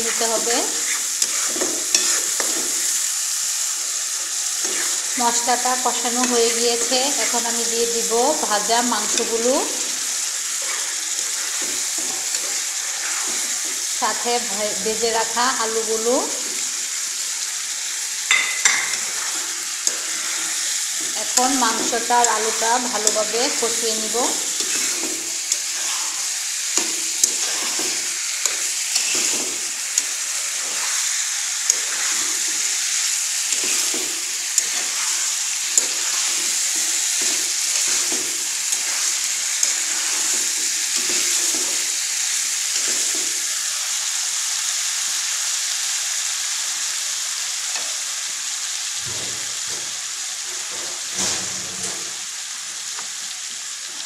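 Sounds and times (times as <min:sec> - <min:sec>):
metal spatula scraping a pan: 0:00.0 - 0:03.2, 0:04.2 - 0:15.0, 0:18.3 - 0:41.9
chicken and potatoes sizzling in oil: 0:00.0 - 0:54.0.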